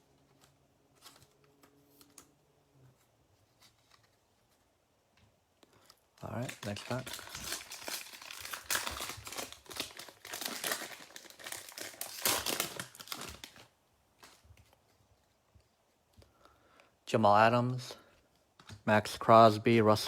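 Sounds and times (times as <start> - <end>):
faint handling sounds: 0.0 - 17.0
plastic wrapper crinkling: 5.7 - 14.8.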